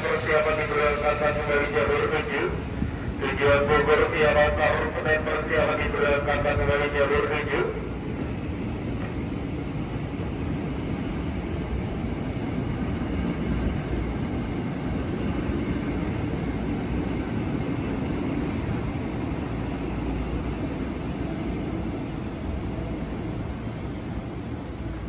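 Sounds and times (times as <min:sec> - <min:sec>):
electric train wheels rumbling on rails: 0:00.0 - 0:25.0.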